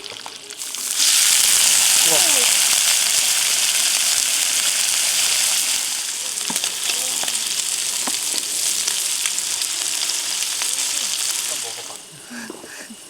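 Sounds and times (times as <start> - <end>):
food sizzling in frying: 0.0 - 13.0.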